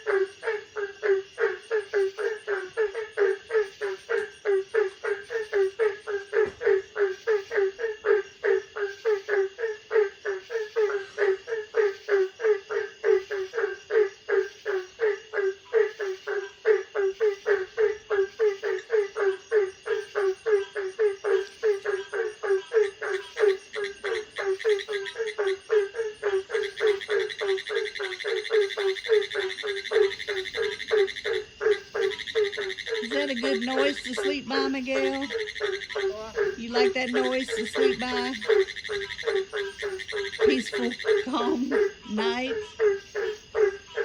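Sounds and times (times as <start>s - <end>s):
frogs croaking: 0.0s - 44.0s.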